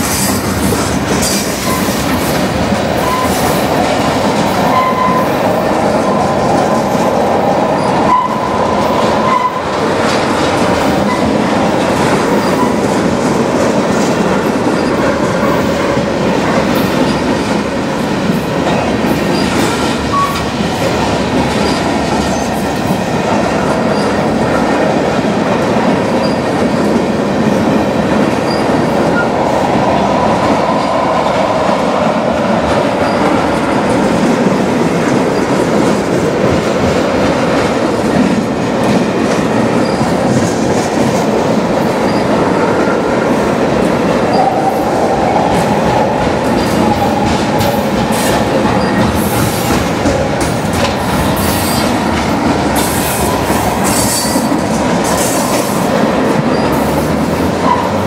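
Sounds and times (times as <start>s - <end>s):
wheels clacking over rail joints: 0.0s - 29.8s, 32.5s - 58.0s
train wheels rumbling on rails: 0.0s - 58.0s.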